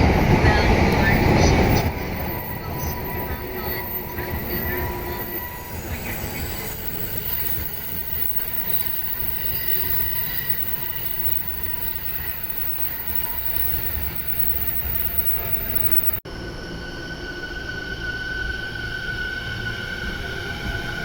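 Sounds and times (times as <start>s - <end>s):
train wheels rumbling on rails: 0.0s - 21.0s
faint high ringing tones: 1.9s - 16.2s.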